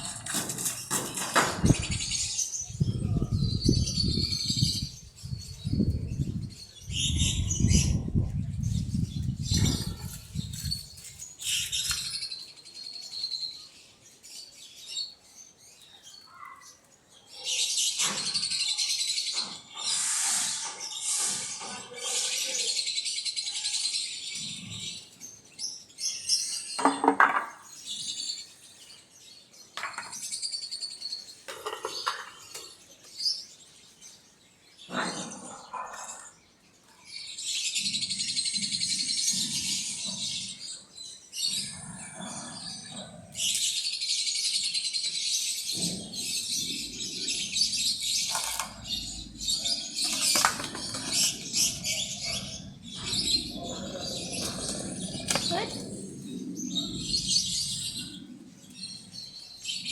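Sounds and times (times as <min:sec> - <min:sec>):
birds chirping: 0:00.0 - 0:59.9
knocks: 0:26.8 - 0:27.6.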